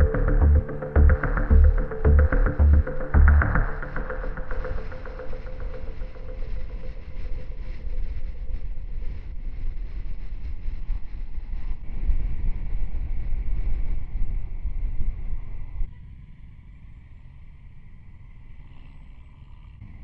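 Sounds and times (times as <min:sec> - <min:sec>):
motorcycle engine rumble: 0:00.0 - 0:06.3.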